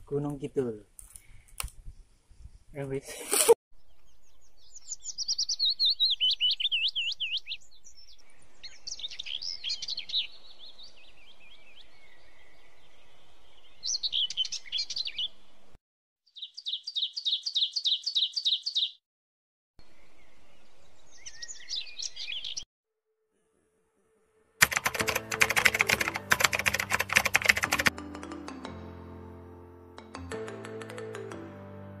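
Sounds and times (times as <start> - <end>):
birds singing: 3.8 - 15.6, 16.3 - 19.0, 19.8 - 22.6.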